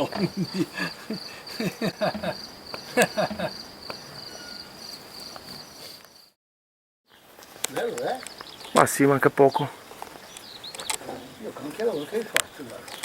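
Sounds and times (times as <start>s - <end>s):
high-pitched insect trill: 0.0s - 6.4s.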